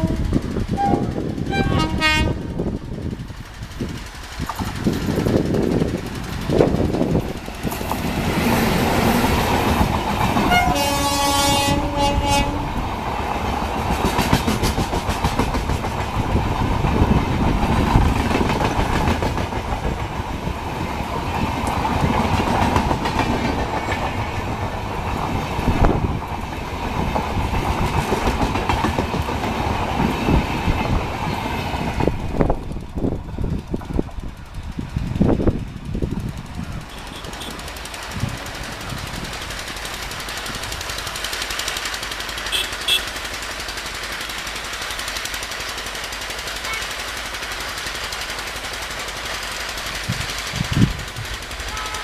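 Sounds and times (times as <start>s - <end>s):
train horn: 0.0s - 2.6s, 10.4s - 12.7s, 42.5s - 43.1s, 46.7s - 46.9s, 51.7s - 52.0s
train wheels clattering on rails: 0.0s - 52.0s.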